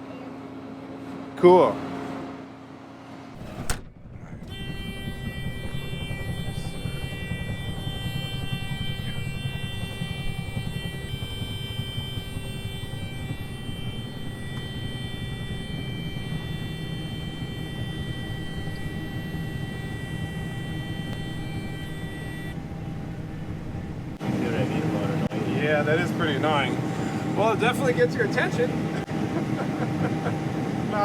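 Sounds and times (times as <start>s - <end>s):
high electronic alarm tone: 3.4s - 25.3s
combine engine rumble: 3.4s - 29.3s.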